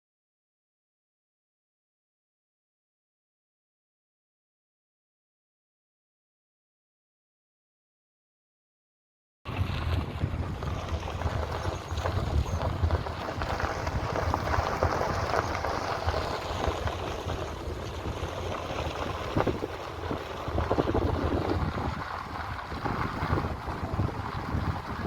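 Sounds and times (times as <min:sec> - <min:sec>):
wind buffeting microphone: 0:09.5 - 0:25.0.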